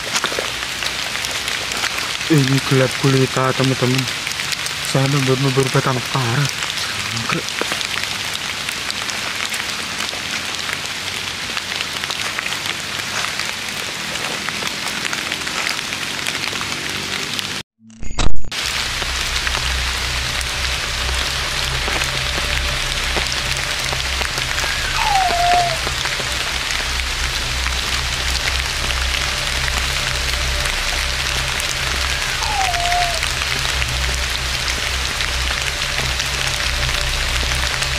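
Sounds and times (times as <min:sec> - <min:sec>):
drizzle of rain: 0:00.0 - 0:17.6, 0:18.5 - 0:37.9
low pulsing drone: 0:18.6 - 0:37.9.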